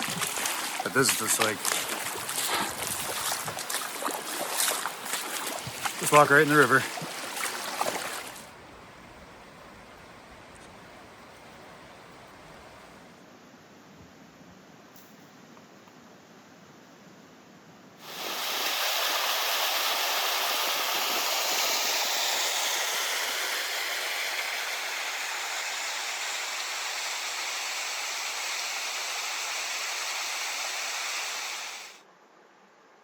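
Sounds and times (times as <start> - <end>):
creek water rushing over cascade: 0.0 - 8.8, 18.0 - 32.0.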